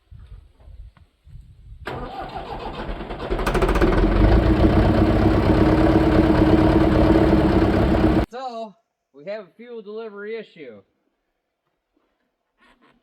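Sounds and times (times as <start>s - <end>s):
tractor diesel engine cranking and running: 1.9s - 8.3s.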